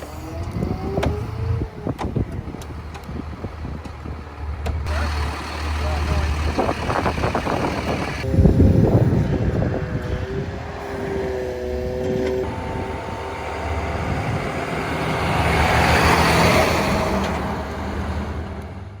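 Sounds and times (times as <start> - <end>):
steady whine: 0.0 - 18.7
truck engine running: 0.0 - 19.0.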